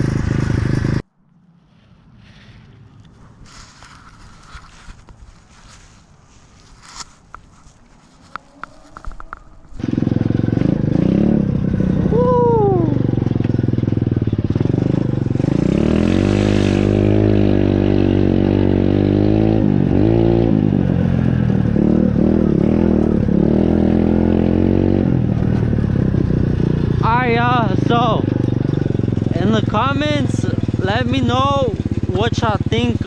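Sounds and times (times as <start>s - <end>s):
motorbike engine revving: 0.0s - 1.0s, 9.3s - 33.0s.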